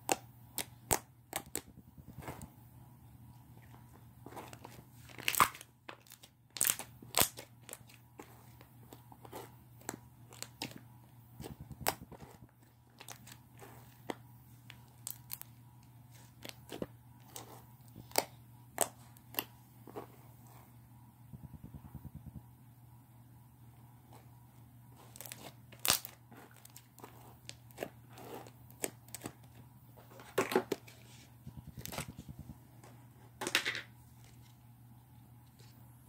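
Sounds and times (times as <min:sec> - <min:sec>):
slime popping and crackling: 0:25.1 - 0:26.7.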